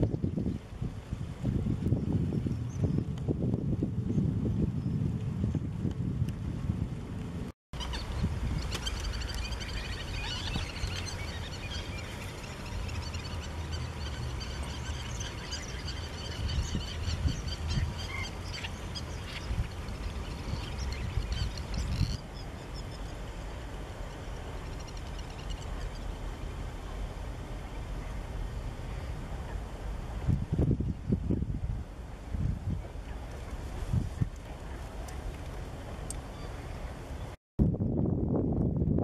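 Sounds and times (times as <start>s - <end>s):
wind rumble on microphone: 0.0s - 39.0s
birds chirping: 7.8s - 23.2s.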